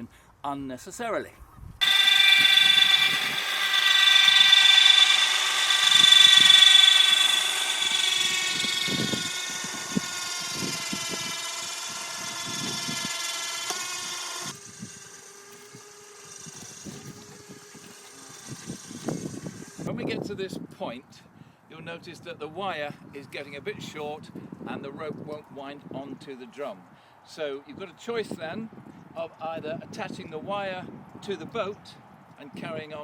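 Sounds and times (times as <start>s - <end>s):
electric winch motor whining: 1.8s - 19.9s.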